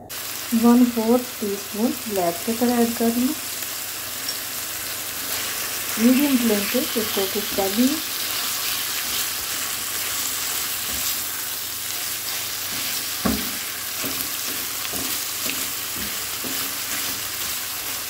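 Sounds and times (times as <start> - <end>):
chicken sizzling in a pan: 0.0 - 18.0
spatula scraping a pan: 7.4 - 18.0
spatula knocking on pan: 12.7 - 17.2.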